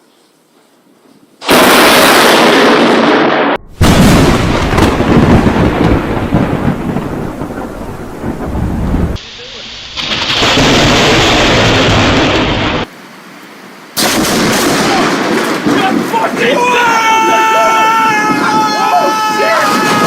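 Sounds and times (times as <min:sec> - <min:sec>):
loud thunderclap: 0:01.5 - 0:09.2, 0:09.9 - 0:12.9, 0:14.0 - 0:17.0
rumbling thunder: 0:01.5 - 0:09.2, 0:09.9 - 0:12.9, 0:14.0 - 0:16.4.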